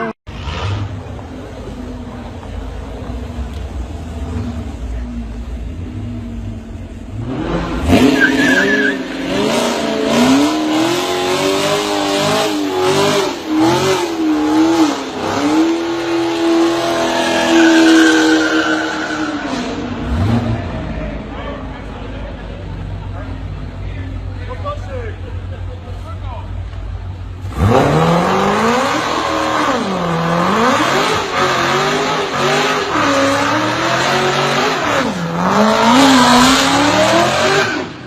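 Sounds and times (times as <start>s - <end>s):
car engine revving: 0.0s - 38.0s
tyres squealing: 7.9s - 9.3s.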